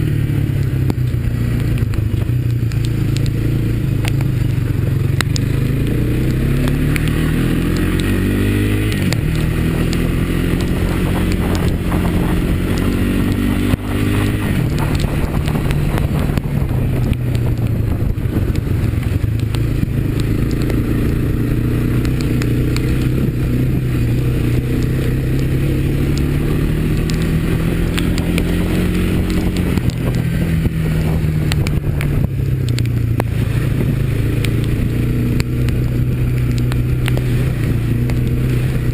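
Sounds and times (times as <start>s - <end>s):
atv engine running under load: 0.0s - 38.9s.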